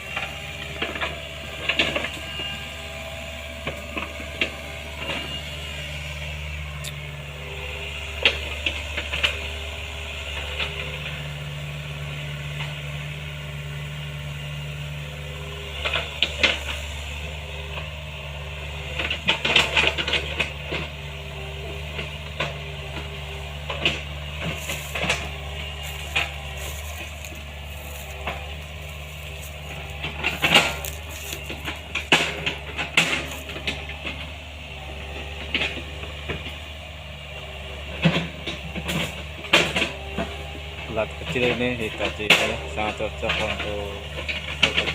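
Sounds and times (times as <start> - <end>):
excavator diesel engine running: 0.0 - 44.9
machine clanks and knocks: 23.7 - 34.2, 41.3 - 44.9.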